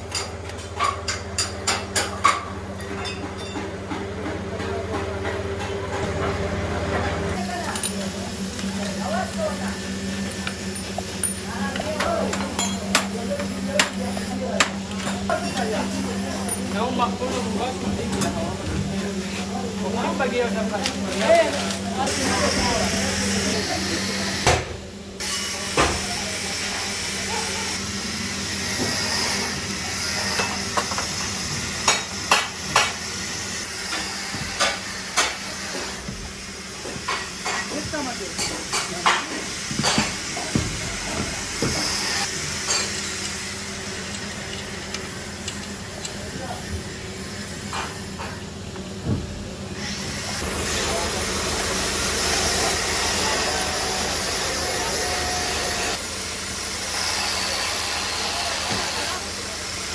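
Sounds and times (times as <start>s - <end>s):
engine running: 41.0s - 57.0s.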